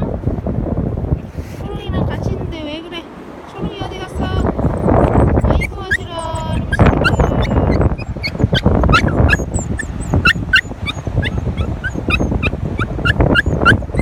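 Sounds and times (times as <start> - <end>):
high-pitched animal calls: 4.4 - 14.0.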